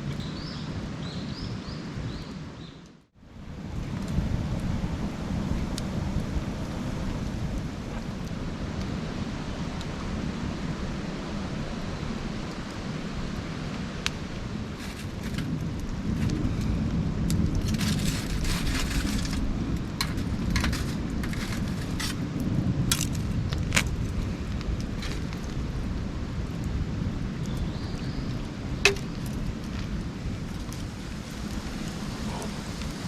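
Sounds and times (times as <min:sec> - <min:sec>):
low fire rumble: 0:03.0 - 0:33.0
campfire crackling and popping: 0:12.3 - 0:33.0.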